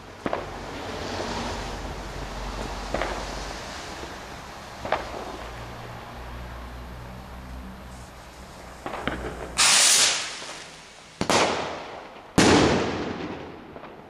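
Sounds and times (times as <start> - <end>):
firework bangs echoing: 0.0 - 1.6, 2.5 - 4.2, 4.8 - 5.6, 8.7 - 14.0
rocket rushing blast: 8.8 - 13.6.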